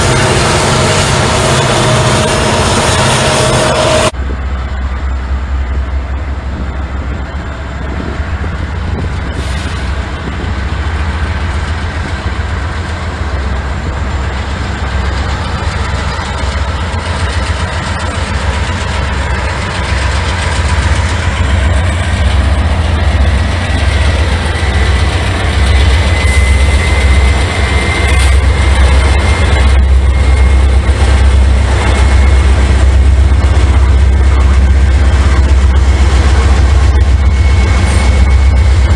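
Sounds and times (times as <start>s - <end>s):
high-pitched squeal: 0.0s - 5.2s, 14.2s - 38.9s
diesel locomotive engine: 0.0s - 38.9s.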